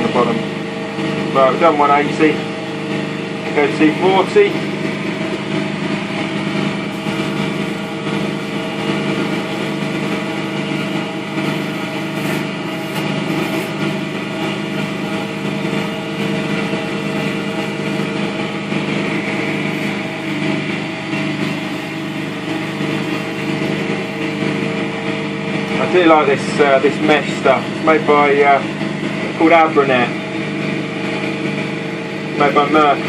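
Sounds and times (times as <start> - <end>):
lathe motor hum: 0.0 - 33.0
sanding hiss: 6.9 - 18.1, 19.3 - 24.5.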